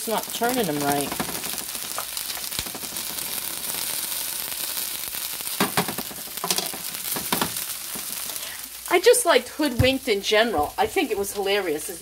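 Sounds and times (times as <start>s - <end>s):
potatoes and onions sizzling: 0.0s - 12.0s.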